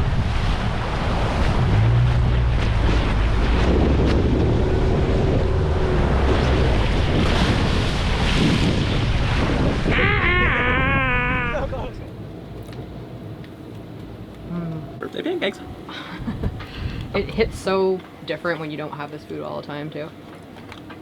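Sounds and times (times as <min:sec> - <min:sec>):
wind buffeting microphone: 0:00.0 - 0:12.1, 0:15.6 - 0:18.8
waves: 0:00.0 - 0:13.2, 0:15.0 - 0:21.0
low steady hum: 0:00.0 - 0:21.0
wavering high-pitched call: 0:09.9 - 0:11.7.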